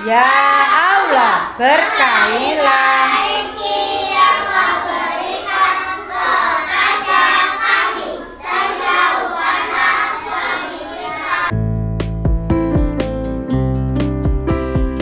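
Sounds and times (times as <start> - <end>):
children singing in unison: 0.0 - 11.5.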